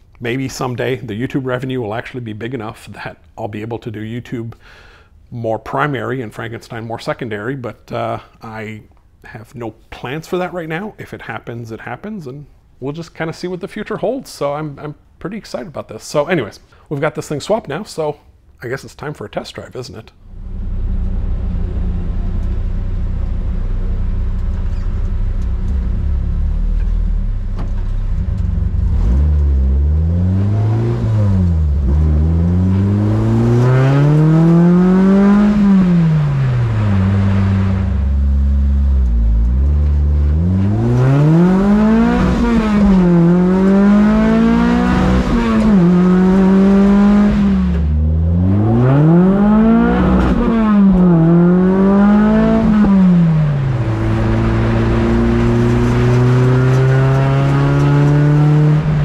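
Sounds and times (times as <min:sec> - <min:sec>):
car engine idling and accelerating: 0:20.2 - 0:59.0.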